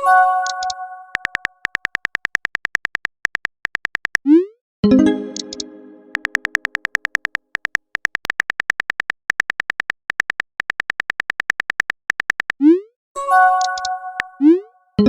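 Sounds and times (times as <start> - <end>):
typing sound effect ticks: 0.4 - 4.5, 5.2 - 12.8, 13.6 - 14.5.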